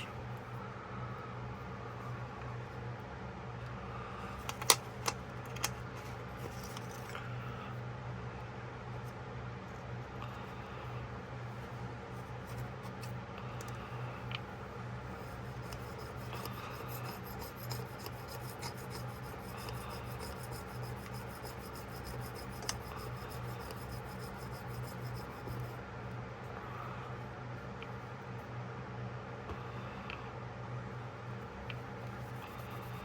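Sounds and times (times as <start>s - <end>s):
steady low hum: 0.0s - 33.0s
scrubbing and scraping metal: 15.4s - 25.6s.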